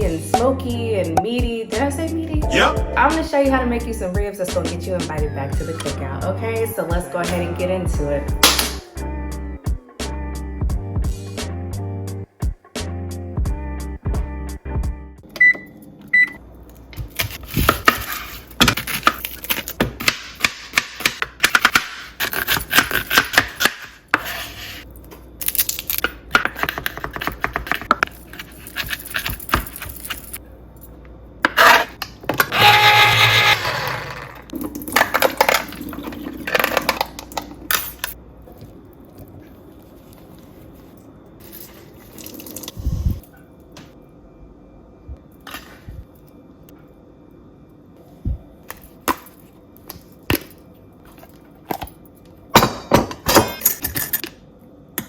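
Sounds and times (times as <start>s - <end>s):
utensils and containers clattering: 33.4s - 38.2s, 53.0s - 54.3s.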